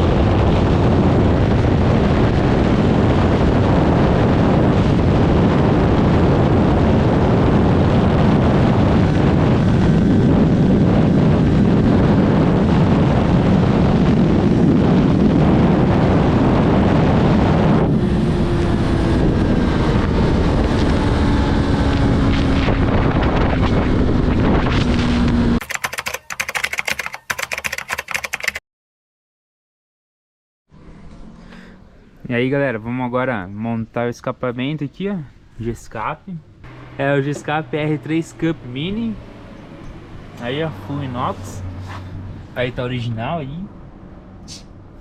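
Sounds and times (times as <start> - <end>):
wind noise on microphone: 0.0 - 25.6.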